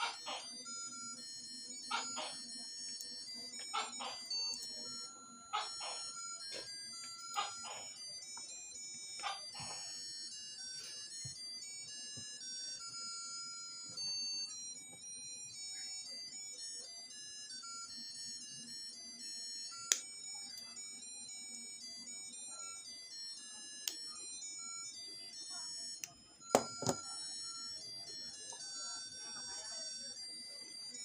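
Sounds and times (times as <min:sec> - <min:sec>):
tinny electronic beeping melody: 0:19.7 - 0:31.0.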